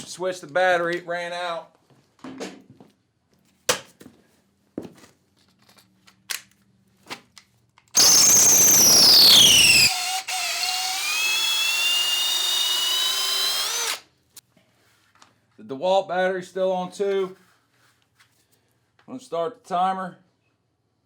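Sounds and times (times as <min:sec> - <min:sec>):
hammer drill rattling and whining: 0:08.0 - 0:14.0.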